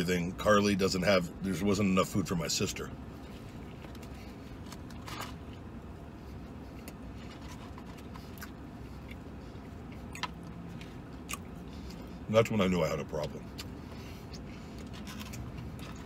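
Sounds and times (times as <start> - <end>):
low hum inside truck cab: 0.0 - 16.0
man chewing food: 3.0 - 12.3, 13.3 - 16.0.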